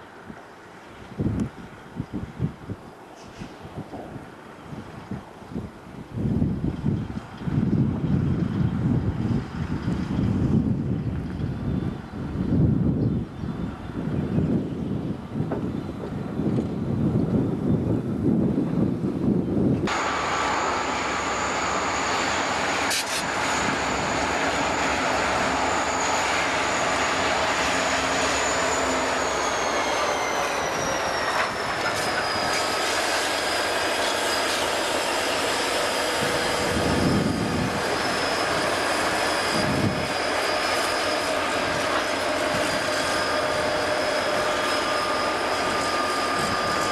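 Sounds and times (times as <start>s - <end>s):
freight cars rumbling and clattering: 6.1s - 46.9s
train wheels squealing on rail: 11.4s - 14.9s, 19.9s - 46.9s.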